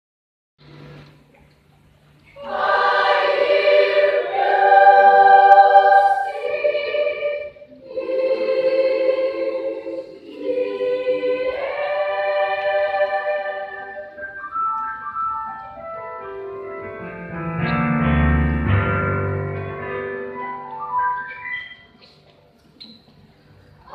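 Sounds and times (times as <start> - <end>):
children's choir singing: 2.4 - 14.4.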